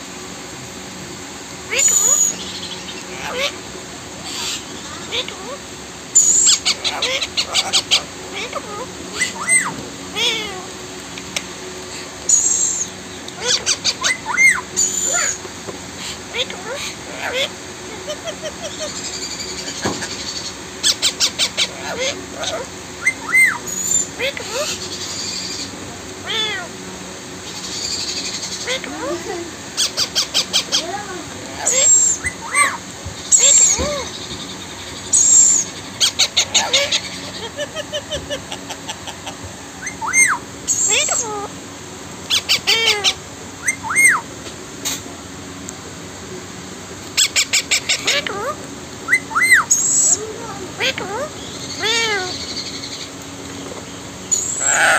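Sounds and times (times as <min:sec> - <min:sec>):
parrot chirping and whistling: 0:01.7 - 0:02.6, 0:06.2 - 0:08.0, 0:09.1 - 0:09.7, 0:12.3 - 0:12.9, 0:13.5 - 0:15.4, 0:23.0 - 0:24.1, 0:31.6 - 0:34.0, 0:35.1 - 0:38.2, 0:39.8 - 0:41.3, 0:43.6 - 0:44.2, 0:49.1 - 0:50.2, 0:54.3 - 0:54.9
parrot screeching and chattering: 0:01.7 - 0:03.6, 0:06.2 - 0:10.6, 0:12.3 - 0:15.4, 0:16.0 - 0:26.7, 0:29.7 - 0:34.2, 0:35.1 - 0:41.5, 0:42.3 - 0:44.3, 0:47.2 - 0:53.0, 0:54.3 - 0:54.9.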